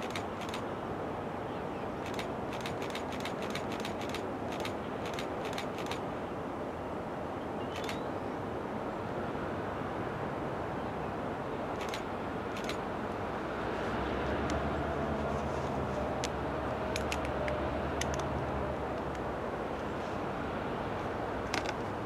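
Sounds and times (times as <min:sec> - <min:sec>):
sharp clicks: 0:00.0 - 0:00.6, 0:02.0 - 0:06.0, 0:07.8 - 0:08.0, 0:11.8 - 0:12.0, 0:12.6 - 0:12.8, 0:17.0 - 0:17.4.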